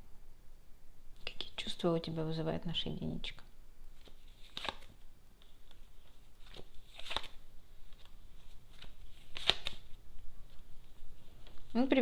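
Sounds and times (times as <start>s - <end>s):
cards being shuffled: 3.9s - 11.7s
cards snapping: 4.0s - 5.0s, 6.4s - 8.1s, 8.7s - 9.9s.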